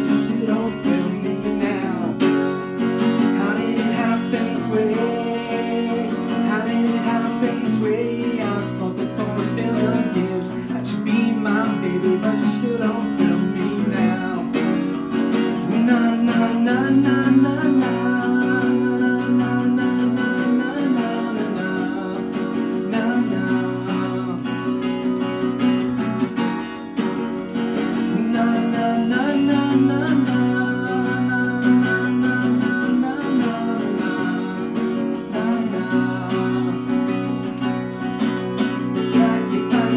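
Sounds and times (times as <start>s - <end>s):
man singing: 0.0s - 26.0s, 27.7s - 39.9s
acoustic guitar strumming: 0.0s - 39.9s.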